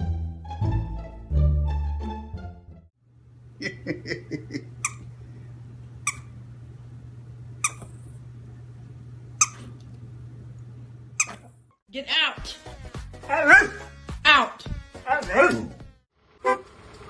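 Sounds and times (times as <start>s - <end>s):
steady low hum: 3.0s - 11.8s.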